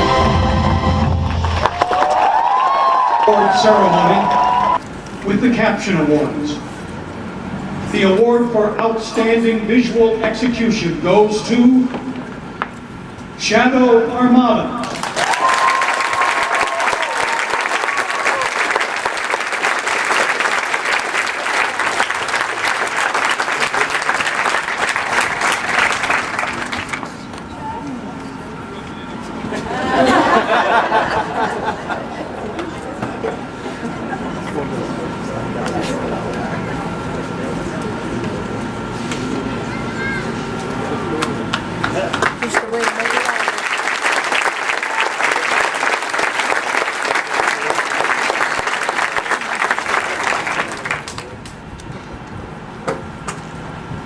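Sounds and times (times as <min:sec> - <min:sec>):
crowd cheering: 0:00.0 - 0:04.8, 0:14.8 - 0:27.2, 0:29.6 - 0:34.4, 0:39.7 - 0:51.4
crowd applauding: 0:01.1 - 0:04.8, 0:14.8 - 0:27.3, 0:41.2 - 0:51.5.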